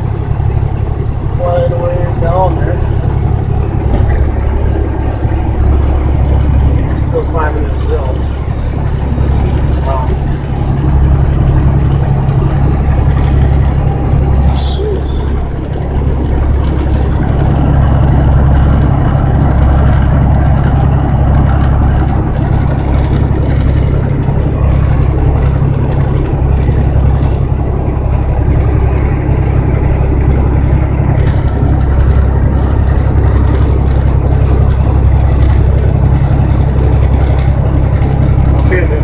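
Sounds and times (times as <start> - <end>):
road noise: 0.0 - 39.0
truck engine drone: 0.0 - 39.0.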